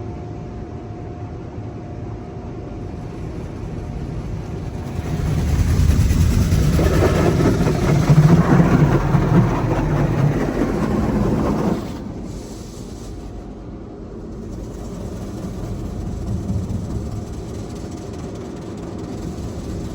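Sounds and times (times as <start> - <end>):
low rumble: 2.1 - 19.9
rushing spray or air: 11.4 - 19.9.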